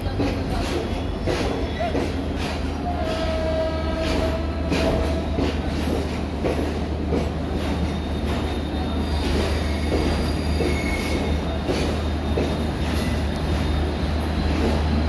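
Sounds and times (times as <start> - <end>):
train rumble: 0.0 - 15.0
train wheels clacking on rail joints: 0.0 - 15.0
wheel squeal: 7.9 - 11.4.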